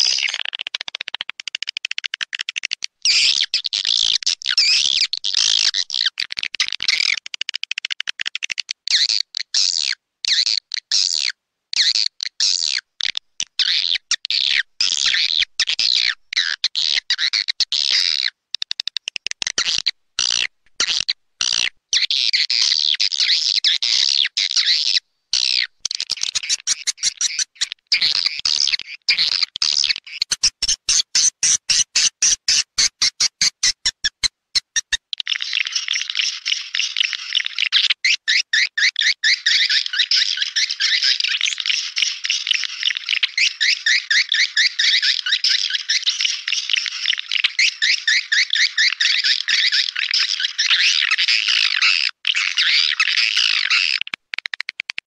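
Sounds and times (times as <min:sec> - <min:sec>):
swiftlets twittering and chirping: 0:19.6 - 0:54.6.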